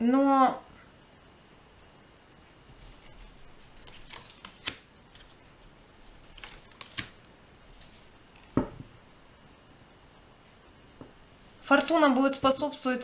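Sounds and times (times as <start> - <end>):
cards rustling on cards: 2.8 - 8.7
sharp card clicks: 3.7 - 5.3, 6.2 - 7.2
dull tap on table: 8.6 - 8.9.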